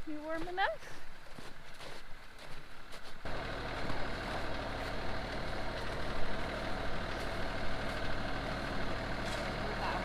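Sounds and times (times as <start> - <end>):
tractor diesel engine running: 3.3 - 10.0.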